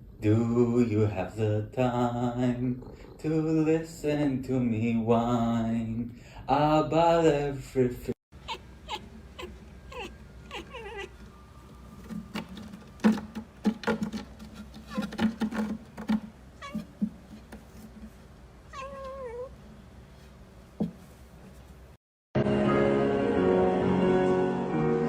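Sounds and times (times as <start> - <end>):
cat meowing: 8.4 - 11.2, 16.6 - 16.9, 18.7 - 19.5
short knocks or thumps: 12.0 - 18.1, 20.8 - 21.1.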